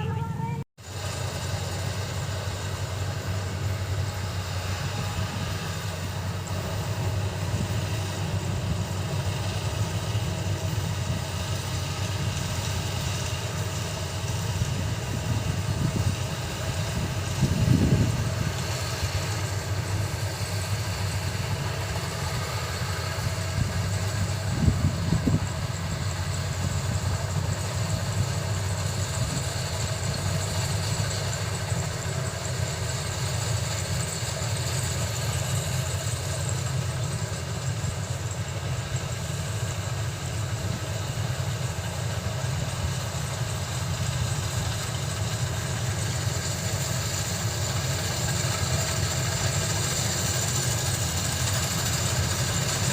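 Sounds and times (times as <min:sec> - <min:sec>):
combine harvester engine running: 0:00.0 - 0:52.9.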